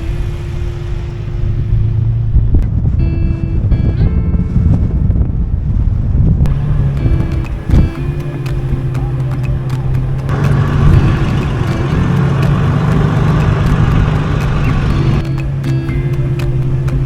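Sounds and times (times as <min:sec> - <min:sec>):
road noise: 0:00.0 - 0:04.0, 0:06.5 - 0:17.0
car engine hum: 0:06.5 - 0:17.0.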